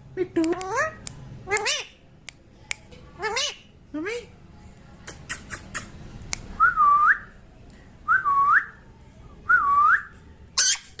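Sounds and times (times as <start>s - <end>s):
harsh parrot squawk: 10.6s - 11.0s.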